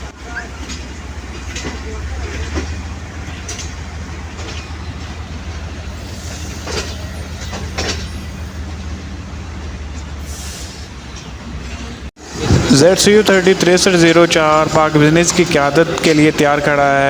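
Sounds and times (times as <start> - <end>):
wheels knocking over rail joints: 0.0 - 10.2
train low rumble: 0.0 - 17.0.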